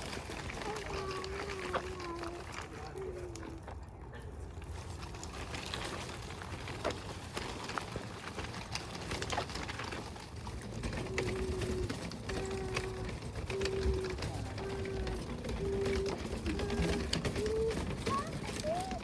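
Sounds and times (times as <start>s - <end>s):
footsteps on a trail: 0.0s - 12.1s.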